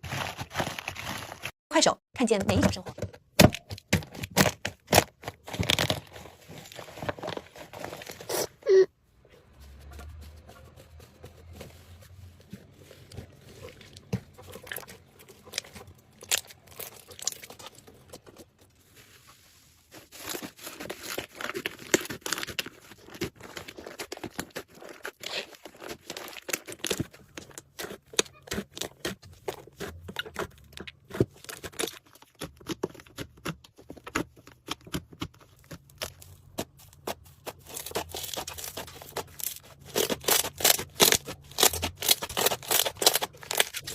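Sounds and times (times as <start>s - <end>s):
slime crackling and popping: 14.5s - 18.4s.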